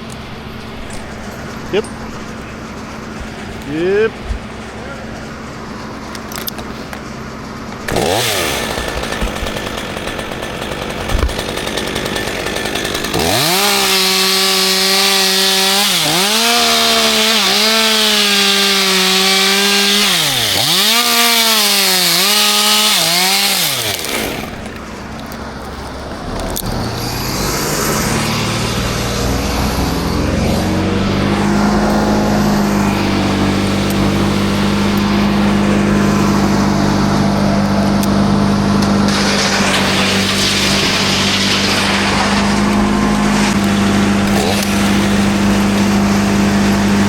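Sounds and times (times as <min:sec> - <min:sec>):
chainsaw cutting wood: 0:07.8 - 0:47.0
low engine hum: 0:24.2 - 0:47.0.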